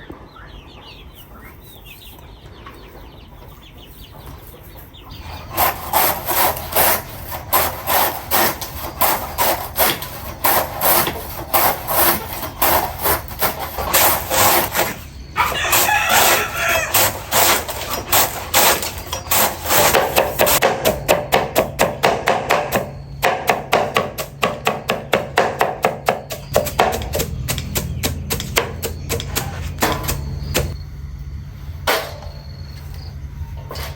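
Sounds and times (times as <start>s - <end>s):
rhythmic scraping strokes: 5.2s - 21.0s, 25.8s - 30.8s.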